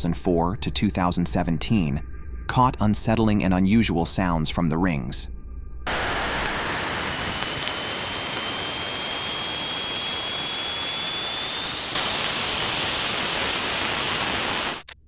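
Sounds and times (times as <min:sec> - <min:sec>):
faint high rising whistle: 0:05.9 - 0:14.8
static hiss: 0:05.9 - 0:15.0.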